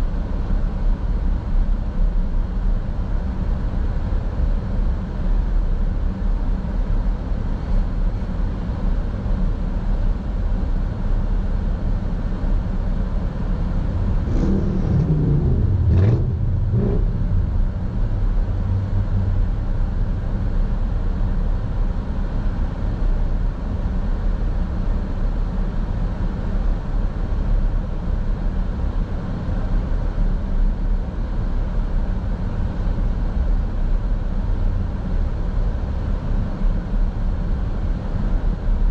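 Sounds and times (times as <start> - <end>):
car driving rumble: 12.0 - 24.0
engine note: 13.6 - 20.6.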